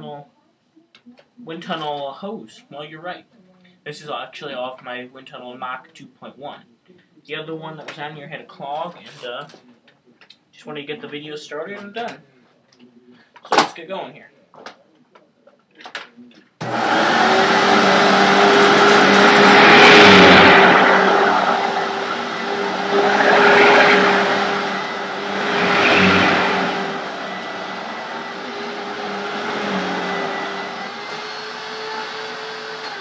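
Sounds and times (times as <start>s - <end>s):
vacuum cleaner switch: 16.6s - 19.6s
vacuum cleaner motor whining: 16.6s - 33.0s.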